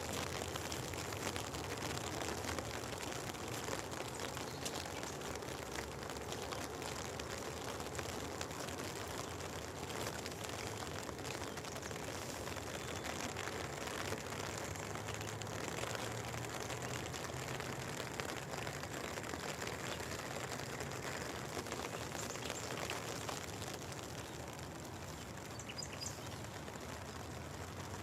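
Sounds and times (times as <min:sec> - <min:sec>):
steady rain hiss: 0:00.0 - 0:28.0.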